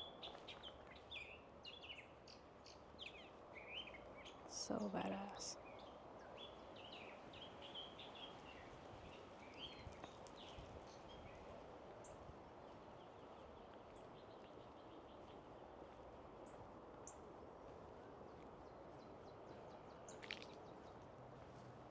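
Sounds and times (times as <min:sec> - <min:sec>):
birds chirping and twittering: 0:00.0 - 0:15.6.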